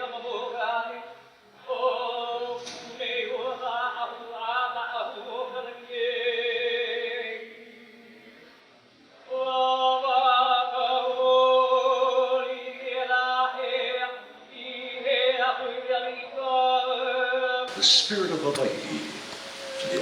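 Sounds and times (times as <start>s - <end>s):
person chanting long notes: 17.7s - 20.0s.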